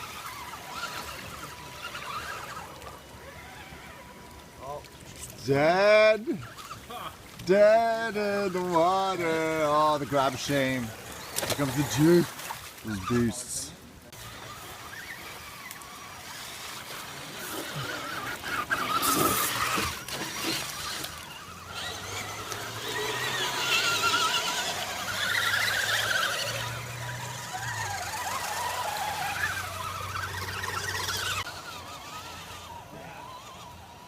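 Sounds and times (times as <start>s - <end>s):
toy car motor whining: 0.0s - 5.4s, 6.2s - 7.1s, 14.1s - 34.0s.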